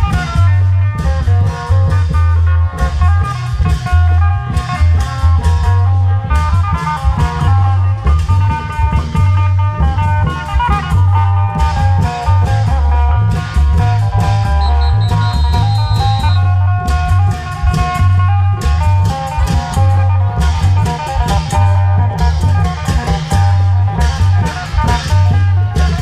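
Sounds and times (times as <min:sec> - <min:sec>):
plucked lead melody: 0:00.0 - 0:26.0
repeating bass line: 0:12.4 - 0:17.2
drum beat: 0:14.1 - 0:16.8.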